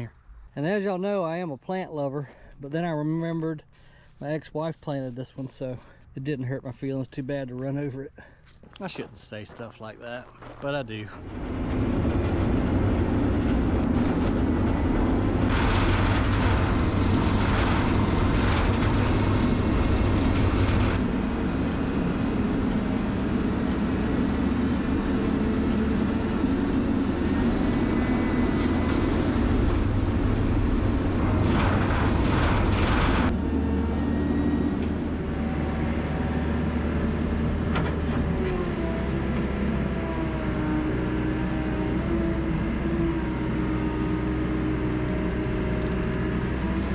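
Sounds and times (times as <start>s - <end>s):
diesel engine running: 7.9s - 46.9s
mechanical noise: 10.2s - 39.5s.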